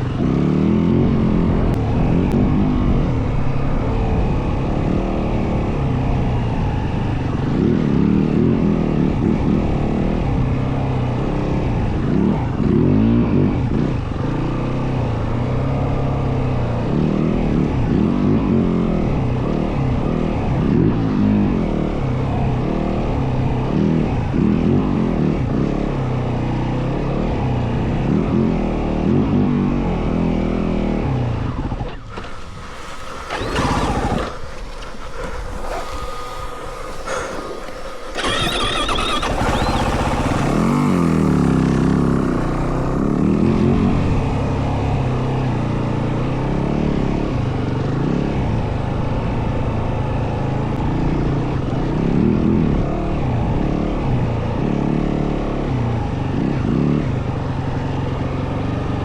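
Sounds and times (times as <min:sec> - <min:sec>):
dirt bike engine revving: 0:31.0 - 0:44.8.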